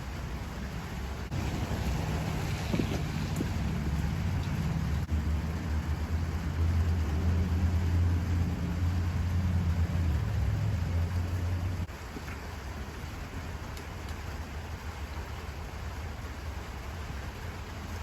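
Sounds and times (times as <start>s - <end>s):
car engine rumbling: 0.0s - 12.9s.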